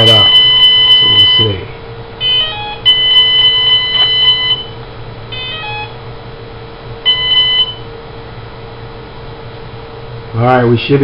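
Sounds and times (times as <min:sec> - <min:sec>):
electronic speed controller beeps: 0:00.0 - 0:01.6, 0:02.2 - 0:04.8, 0:05.4 - 0:06.0
steady low hum: 0:00.0 - 0:11.0.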